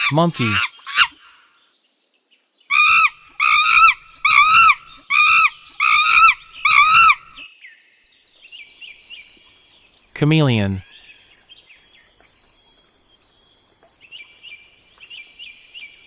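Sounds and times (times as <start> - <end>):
monkey screaming: 0.0 - 1.3, 2.7 - 7.4.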